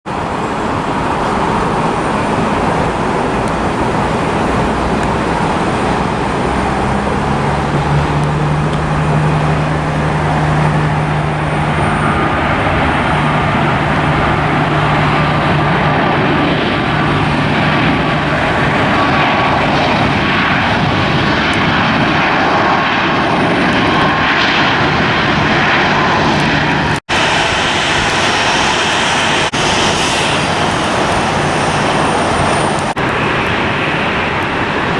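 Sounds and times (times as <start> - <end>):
airliner engines running: 0.0 - 34.9
faint gliding whine: 0.6 - 20.5.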